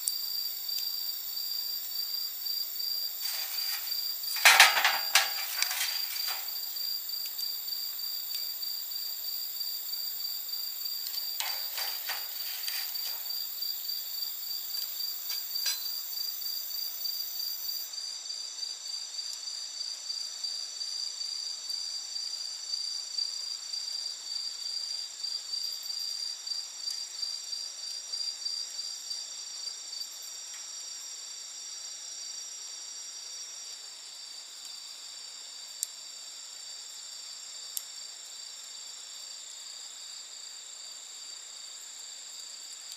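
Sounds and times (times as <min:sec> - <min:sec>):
campfire crackling: 0:00.0 - 0:17.4
crickets trilling: 0:00.0 - 0:42.9.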